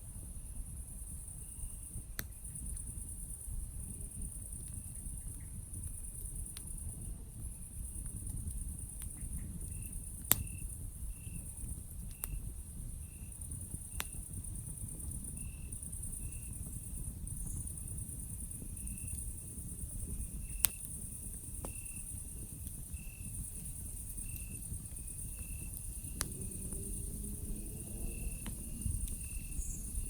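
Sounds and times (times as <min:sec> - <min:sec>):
campfire crackling: 0:01.1 - 0:30.0
fire popping: 0:01.9 - 0:30.0
insects trilling: 0:14.0 - 0:30.0.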